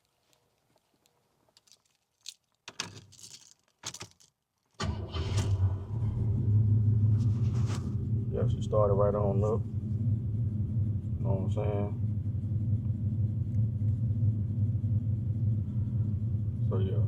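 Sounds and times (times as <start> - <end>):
short rattles: 1.5 - 5.6
car engine starting and idling: 4.8 - 17.0.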